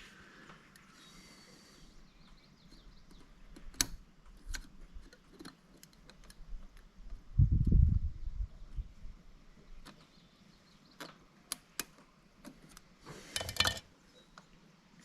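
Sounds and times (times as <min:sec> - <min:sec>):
hand tools clicking and tapping: 0:11.0 - 0:13.8.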